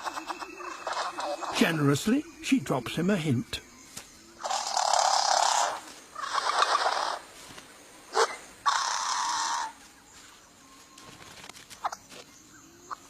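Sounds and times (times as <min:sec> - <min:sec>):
bird rasping calls: 0:00.0 - 0:02.5, 0:04.3 - 0:07.4, 0:08.1 - 0:09.8.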